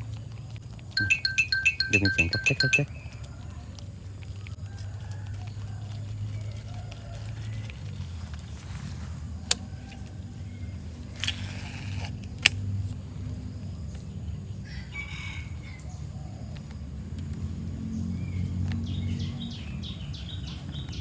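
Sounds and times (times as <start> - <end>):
rooster crowing: 4.5 - 8.2, 8.8 - 11.0, 14.6 - 16.5.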